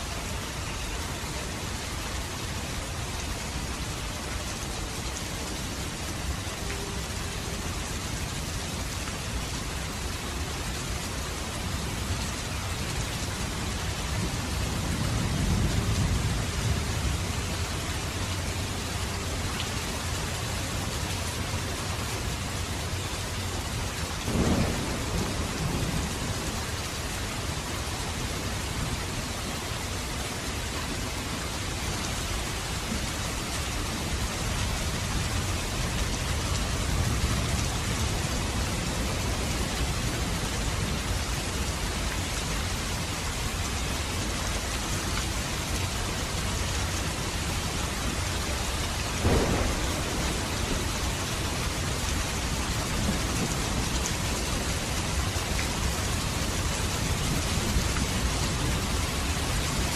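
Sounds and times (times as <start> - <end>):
rain falling: 0.0 - 59.9
low rumble of thunder: 9.5 - 19.5, 24.2 - 29.9, 46.4 - 59.9.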